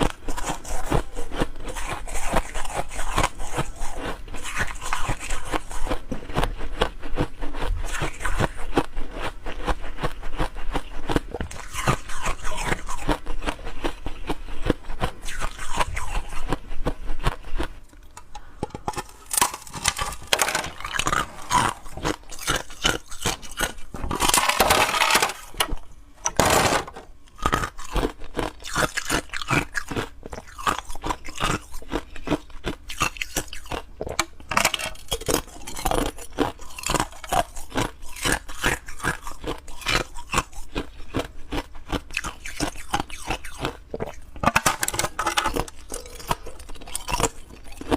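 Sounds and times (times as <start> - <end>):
ice crunched between teeth: 18.8 - 25.8, 27.3 - 47.9.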